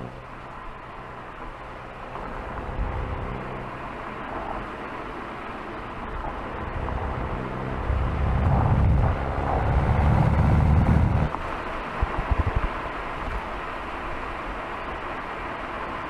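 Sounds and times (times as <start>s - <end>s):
car engine accelerating: 0.0s - 11.6s
short low thumps: 6.8s - 11.3s.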